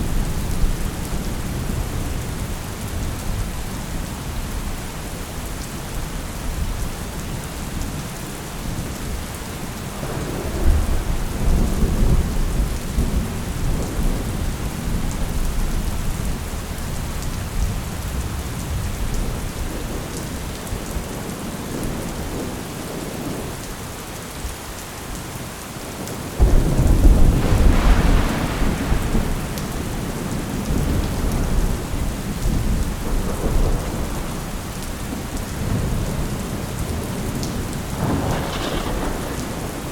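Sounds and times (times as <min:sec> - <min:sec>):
steady rain: 0:00.0 - 0:39.9
rolling thunder: 0:09.8 - 0:16.4, 0:26.4 - 0:39.9.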